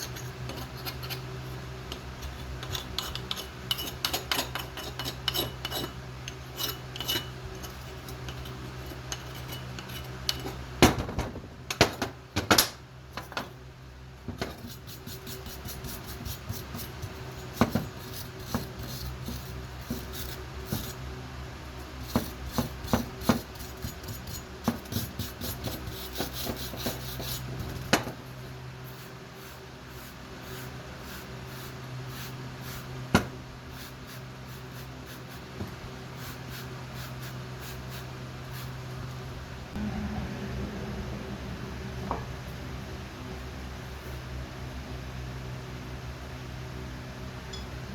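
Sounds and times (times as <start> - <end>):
metal being rasped and scraped: 0.0 - 10.7, 14.4 - 21.1, 21.8 - 28.2, 28.8 - 38.8
steady hum: 0.0 - 47.9.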